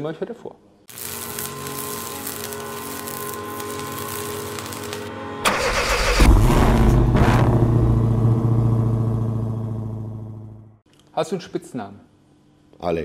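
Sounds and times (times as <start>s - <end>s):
car engine starting and idling: 5.4s - 10.8s.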